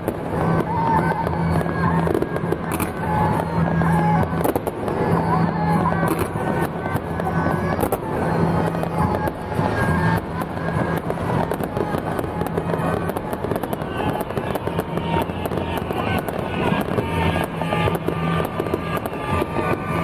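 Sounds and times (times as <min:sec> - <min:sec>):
fireworks popping and banging: 0:00.0 - 0:20.0.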